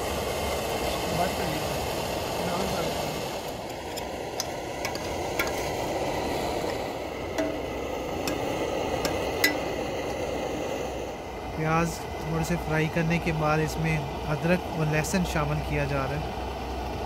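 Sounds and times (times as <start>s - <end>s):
onions frying in oil: 0.0s - 17.0s
oil pops: 3.4s - 10.2s.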